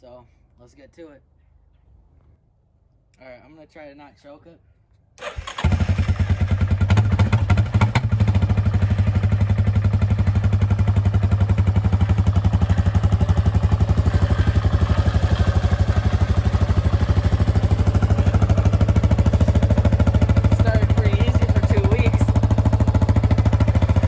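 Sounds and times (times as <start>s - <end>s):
atv engine idling: 5.2s - 24.0s.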